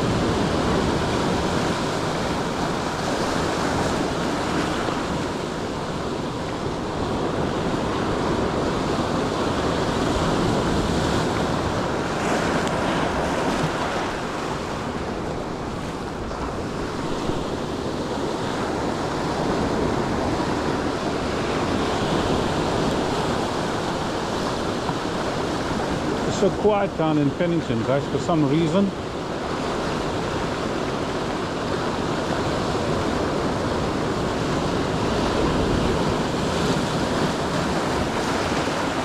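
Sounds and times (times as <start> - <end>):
surf breaking on shore: 0.0 - 39.0.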